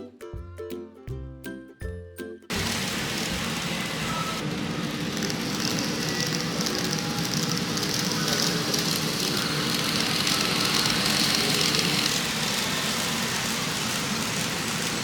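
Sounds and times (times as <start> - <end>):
model train motor humming: 2.5 - 15.0.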